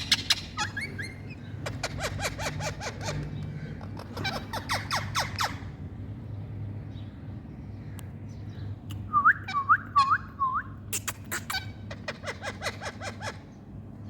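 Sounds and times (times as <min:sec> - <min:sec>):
parrot squawking: 0:00.0 - 0:05.8, 0:11.0 - 0:13.5.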